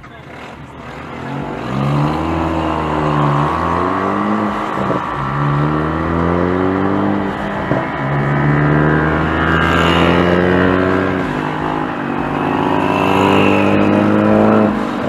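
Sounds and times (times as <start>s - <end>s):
minibike engine revving: 0.0s - 15.0s.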